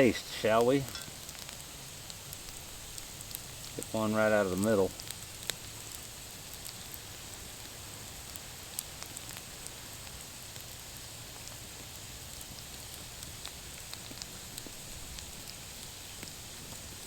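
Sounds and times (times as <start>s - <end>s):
potatoes sizzling in a skillet: 0.0s - 17.0s
small pops and crackles: 0.0s - 17.0s.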